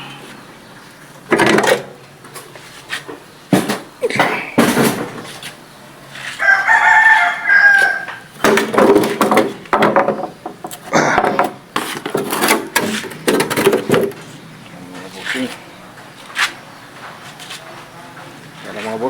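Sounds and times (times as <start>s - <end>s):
rooster crowing: 6.2s - 8.3s.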